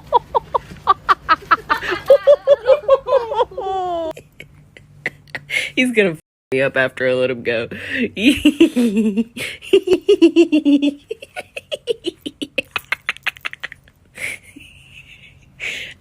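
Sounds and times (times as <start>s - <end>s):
person laughing hard: 0.0s - 5.7s, 8.3s - 16.0s.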